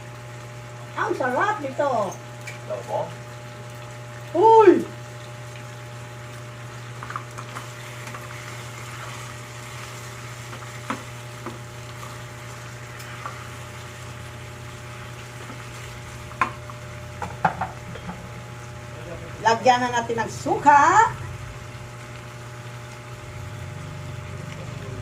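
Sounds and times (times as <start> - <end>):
chicken sizzling in a pan: 0.0 - 25.0
low hum: 17.8 - 25.0.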